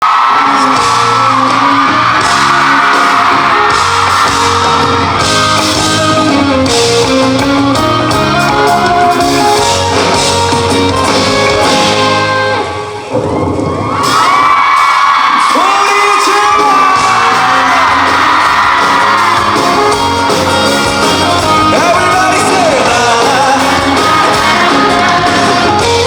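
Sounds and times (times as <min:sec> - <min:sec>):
crowd shouting: 0:00.0 - 0:06.0, 0:12.6 - 0:25.9
live rock band playing: 0:00.0 - 0:26.0
electric guitar: 0:00.1 - 0:13.7, 0:16.8 - 0:26.0.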